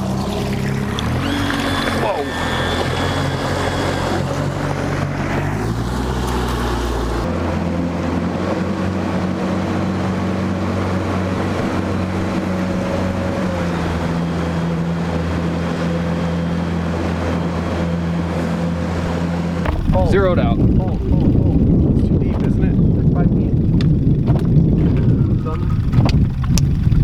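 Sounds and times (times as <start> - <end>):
boat motor humming: 0.0 - 27.0
wind on microphone: 19.6 - 27.0.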